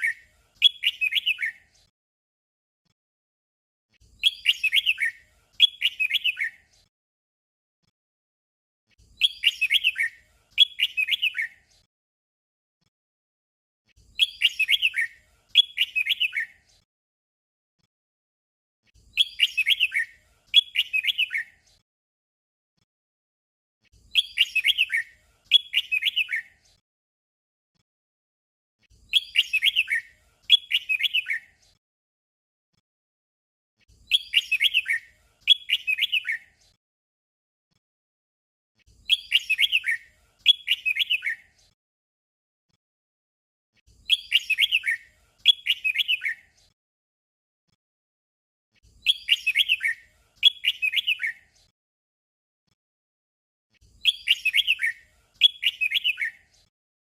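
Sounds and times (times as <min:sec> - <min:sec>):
bird warbled song phrase: 0:00.0 - 0:01.6, 0:04.2 - 0:06.6, 0:09.2 - 0:11.6, 0:14.2 - 0:16.6, 0:19.1 - 0:21.5, 0:24.1 - 0:26.5, 0:29.1 - 0:31.5, 0:34.1 - 0:36.4, 0:39.0 - 0:41.4, 0:44.1 - 0:46.5, 0:49.0 - 0:51.4, 0:54.0 - 0:56.5.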